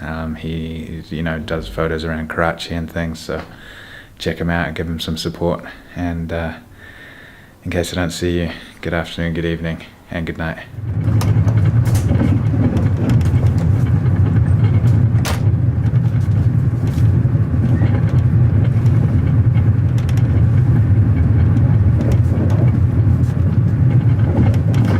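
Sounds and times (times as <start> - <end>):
vehicle engine rumbling: 0.4 - 3.0, 10.7 - 24.9
clicks and rattles: 10.9 - 24.9.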